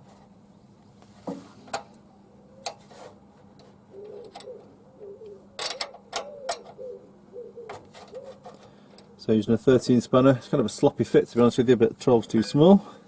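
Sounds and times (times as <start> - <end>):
spanner clicking on metal nuts: 3.6 - 4.6, 5.6 - 6.8.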